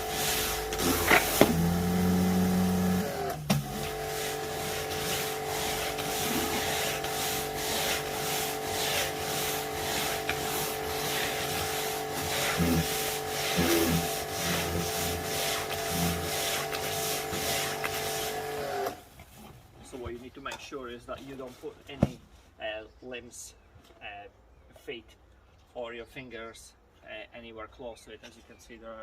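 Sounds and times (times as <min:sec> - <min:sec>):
water jet hissing on paving: 0:00.0 - 0:18.9
pressure washer motor whine: 0:00.0 - 0:19.0.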